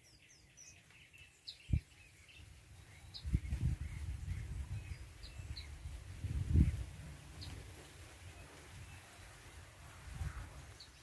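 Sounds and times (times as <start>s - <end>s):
songbird chirping: 0.0s - 11.0s
low rumble on microphone: 2.8s - 9.1s.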